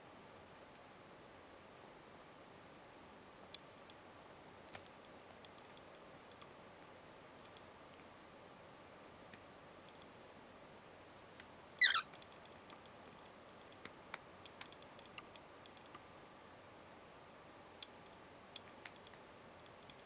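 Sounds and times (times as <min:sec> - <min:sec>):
light ticks and clicks: 0:03.5 - 0:06.6, 0:07.4 - 0:08.1, 0:09.2 - 0:10.2, 0:12.1 - 0:16.1, 0:17.8 - 0:20.0
cockatiel chirp: 0:11.8 - 0:12.1.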